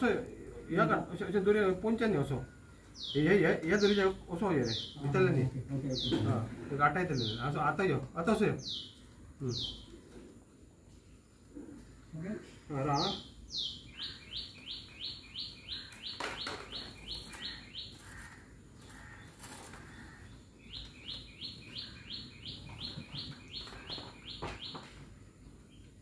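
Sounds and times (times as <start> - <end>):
bird chirping: 0.0 - 10.4, 11.0 - 26.0.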